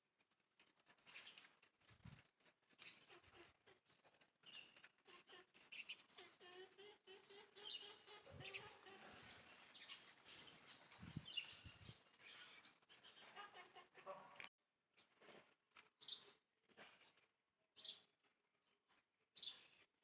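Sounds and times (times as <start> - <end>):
high chirping calls: 5.6 - 13.3.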